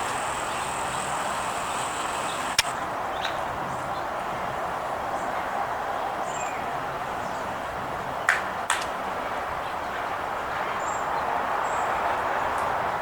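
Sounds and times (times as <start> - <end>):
faint bird chirps: 0.0 - 2.7
sharp clicks: 0.0 - 2.8
steady rushing noise: 0.0 - 2.8.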